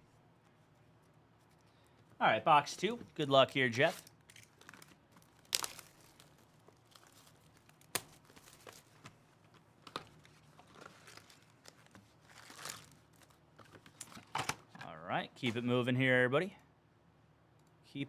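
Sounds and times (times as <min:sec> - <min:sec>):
plastic and foil wrapping crinkling: 0:02.8 - 0:14.3.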